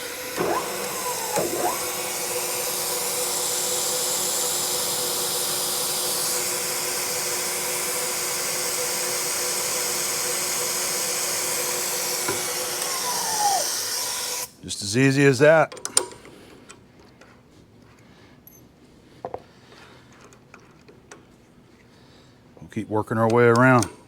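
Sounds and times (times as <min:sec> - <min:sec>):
milling machine spindle hum: 0:00.0 - 0:14.5
short falling whines: 0:12.4 - 0:14.4.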